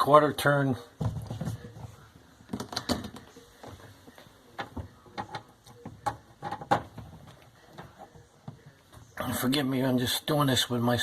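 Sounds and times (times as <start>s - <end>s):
plastic parts clicking and knocking: 2.5s - 3.8s, 4.6s - 9.0s.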